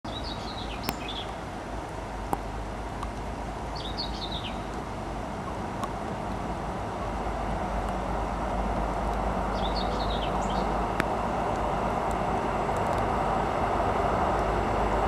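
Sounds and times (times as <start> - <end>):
songbird chirping: 0.0 - 1.4, 3.7 - 4.8, 9.5 - 10.9
steady low rumble: 0.1 - 15.0.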